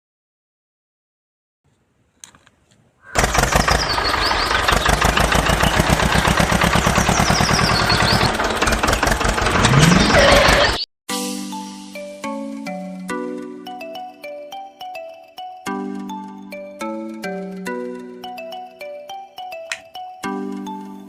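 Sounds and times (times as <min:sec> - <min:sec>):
tractor engine running: 0:03.1 - 0:10.8
chiming melody: 0:11.2 - 0:21.0.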